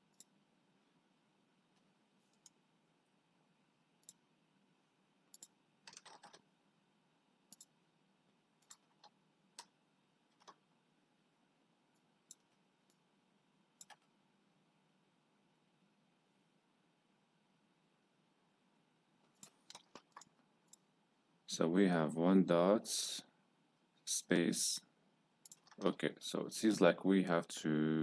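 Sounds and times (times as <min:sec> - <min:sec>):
computer mouse and keyboard clicks: 0:05.3 - 0:06.5, 0:07.5 - 0:07.7, 0:08.6 - 0:10.6, 0:13.8 - 0:14.1, 0:19.3 - 0:20.8, 0:25.4 - 0:26.0.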